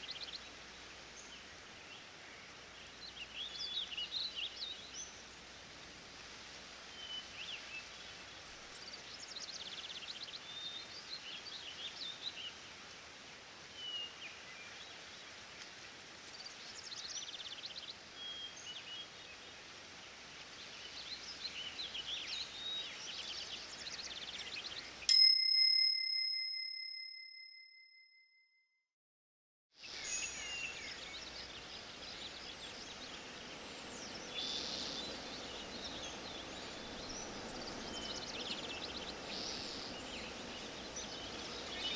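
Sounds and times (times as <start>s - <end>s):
bell ding: 25.1s - 28.3s, 30.0s - 31.4s
birds singing: 29.9s - 41.9s.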